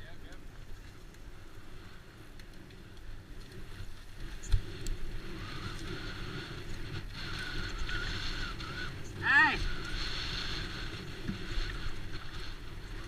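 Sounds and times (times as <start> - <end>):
mountain bike rumbling on trail: 0.0 - 13.0
wind on microphone: 3.1 - 13.0.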